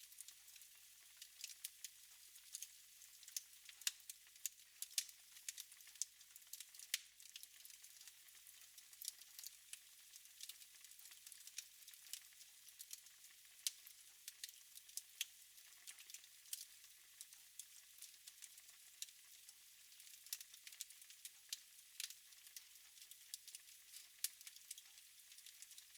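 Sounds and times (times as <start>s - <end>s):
wood fire crackling: 1.4s - 1.6s, 2.5s - 8.1s, 9.0s - 9.6s, 13.6s - 13.8s, 14.4s - 16.7s, 22.0s - 22.2s, 23.0s - 25.9s.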